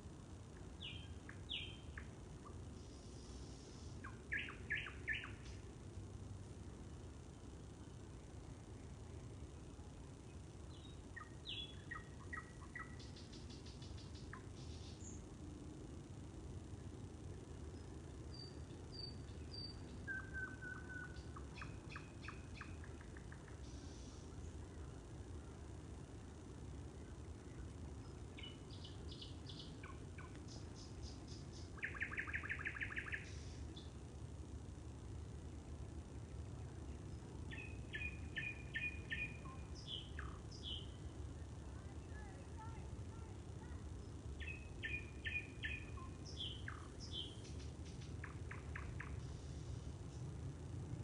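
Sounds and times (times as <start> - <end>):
faint low rumble: 0.0 - 51.0
bird singing: 0.6 - 5.8, 10.2 - 15.3, 17.6 - 25.7, 26.9 - 34.1, 36.6 - 42.8, 43.6 - 50.3.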